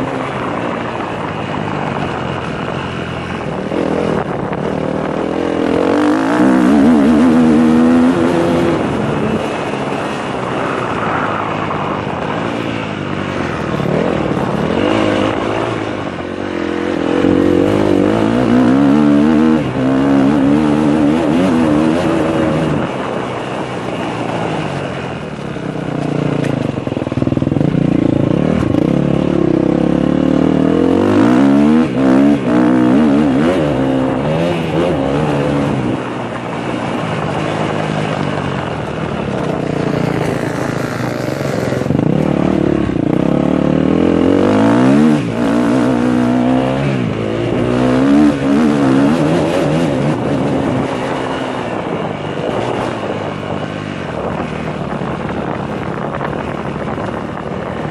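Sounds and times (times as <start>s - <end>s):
motocross engine revving: 3.7s - 9.8s, 27.5s - 36.2s, 39.1s - 51.9s.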